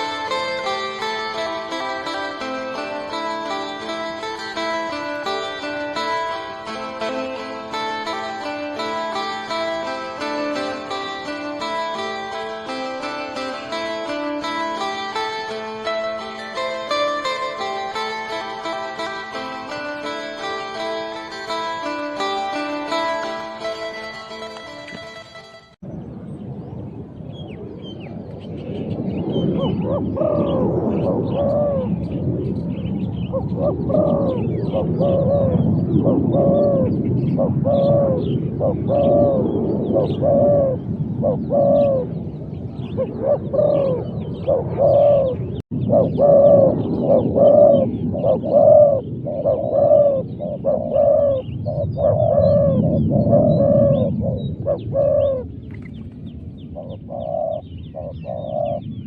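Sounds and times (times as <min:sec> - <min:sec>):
doves cooing: 0:29.4 - 0:32.2, 0:33.2 - 0:56.0, 0:56.6 - 0:59.0.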